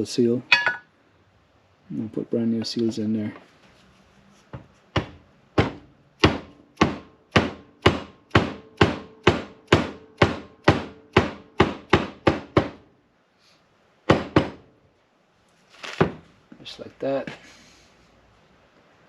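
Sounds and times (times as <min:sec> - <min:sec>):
hammer knocking on metal: 0:04.5 - 0:12.8, 0:14.1 - 0:14.6.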